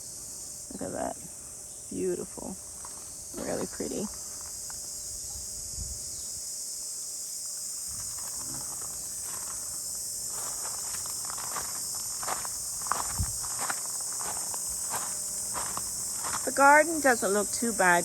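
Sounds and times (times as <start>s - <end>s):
crickets chirping: 0.0s - 18.0s
light footsteps or rustles: 7.9s - 16.6s.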